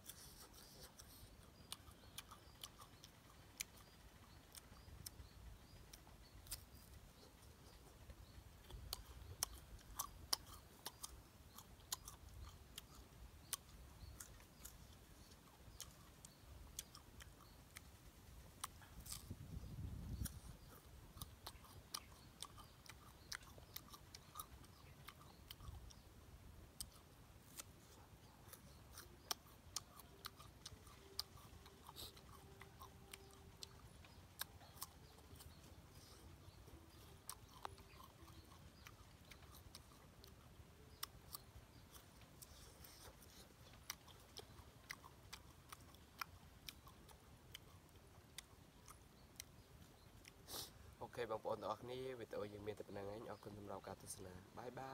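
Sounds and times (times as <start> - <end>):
wet mouth clicks: 0.0 - 50.9
fruit crunching while chewed: 0.0 - 54.9.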